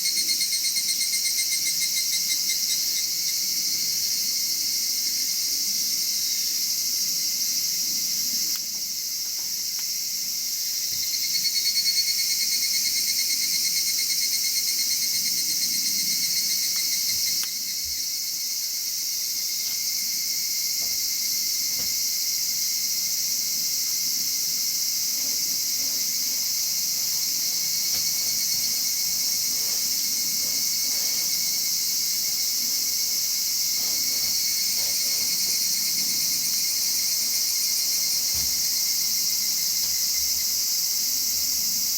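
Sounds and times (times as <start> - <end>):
insects chirring: 0.0 - 41.9
pulsing insect trill: 10.0 - 41.9.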